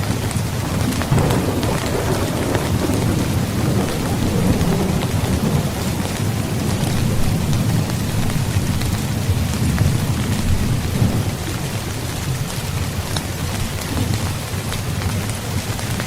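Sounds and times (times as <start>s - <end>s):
heavy rain falling: 0.0s - 16.0s
low rumble of thunder: 0.3s - 13.1s.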